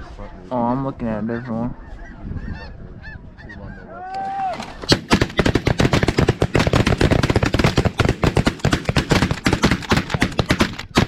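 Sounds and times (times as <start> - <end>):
geese honking: 1.0 - 4.0.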